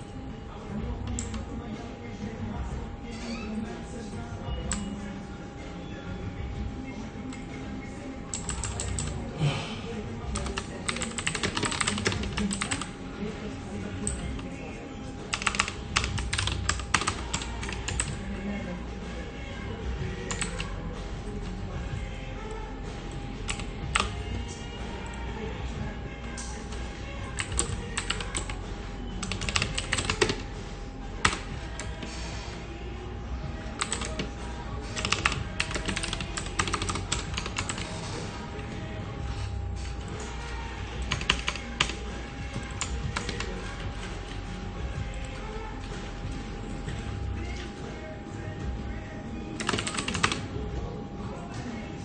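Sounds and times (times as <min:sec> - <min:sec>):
keyboard typing: 0:01.0 - 0:01.6, 0:04.6 - 0:05.0, 0:08.2 - 0:09.3, 0:10.3 - 0:13.0, 0:13.8 - 0:14.6, 0:15.3 - 0:18.3, 0:20.1 - 0:20.7, 0:22.5 - 0:25.2, 0:26.3 - 0:28.6, 0:29.2 - 0:30.6, 0:31.2 - 0:32.2, 0:33.6 - 0:38.3, 0:39.9 - 0:47.8, 0:49.5 - 0:50.5.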